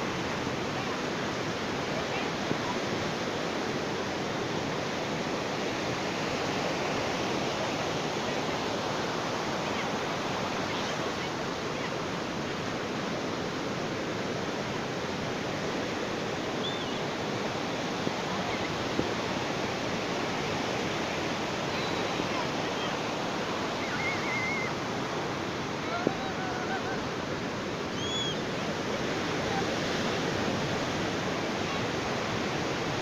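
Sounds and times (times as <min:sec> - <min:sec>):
waves washing on a beach: 0:00.0 - 0:33.0.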